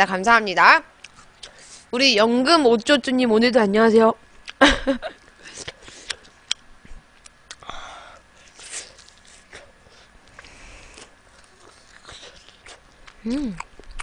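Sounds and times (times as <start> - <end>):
mouth clicks and wet smacks: 7.2 - 7.7.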